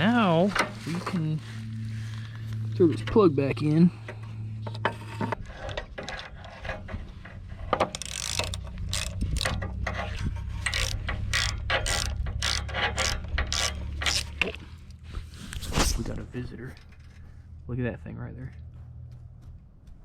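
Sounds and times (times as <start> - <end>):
ratchet wrench clicking: 7.8 - 14.4.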